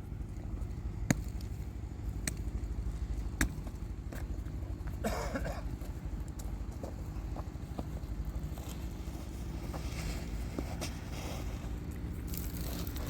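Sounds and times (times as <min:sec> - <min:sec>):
engine running with low rumble: 0:00.0 - 0:13.0.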